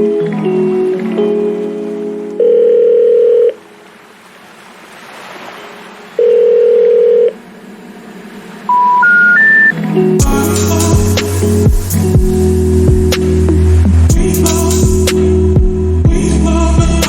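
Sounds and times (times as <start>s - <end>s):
telephone ringing tone beeps: 2.4s - 3.6s, 6.2s - 7.4s, 8.7s - 9.8s
short rising telephone beeps: 8.7s - 9.8s.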